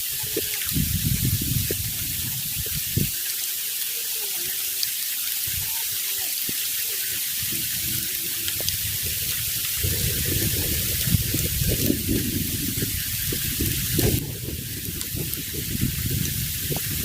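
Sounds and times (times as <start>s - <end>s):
faint wavering voices: 0.0s - 0.8s, 1.7s - 11.8s
heavy rain hissing: 0.0s - 17.0s.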